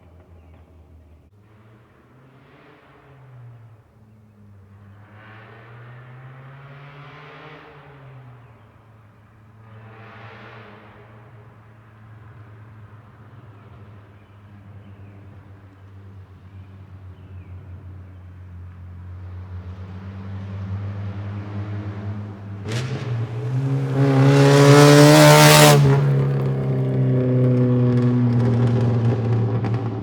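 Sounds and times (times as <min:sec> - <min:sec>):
loud car exhaust accelerating: 0:18.1 - 0:30.0.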